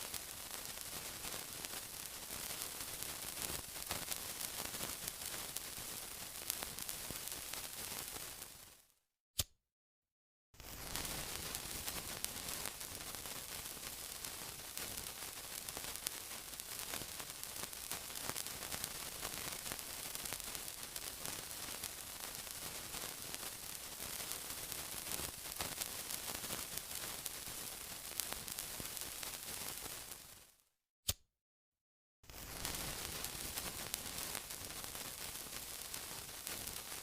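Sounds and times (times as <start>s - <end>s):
steady sizzling: 10.6s - 30.5s, 32.3s - 37.0s.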